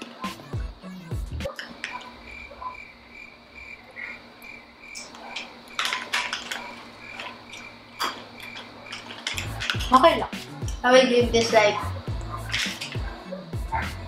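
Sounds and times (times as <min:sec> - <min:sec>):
cricket chirping: 0:00.0 - 0:14.0
short crackles: 0:11.4 - 0:14.0.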